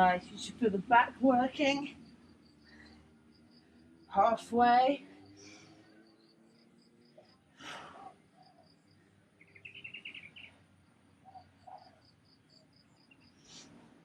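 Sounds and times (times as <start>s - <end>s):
faint bird chirping: 5.0s - 14.0s
bird trill: 9.4s - 10.6s.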